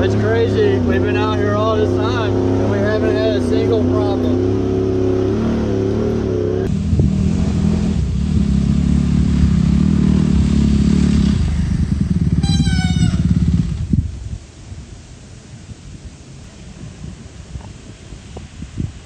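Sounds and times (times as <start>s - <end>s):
off-road vehicle engine revving: 0.0s - 14.2s
faint wind noise: 0.0s - 19.0s
brief high tone: 12.4s - 13.7s.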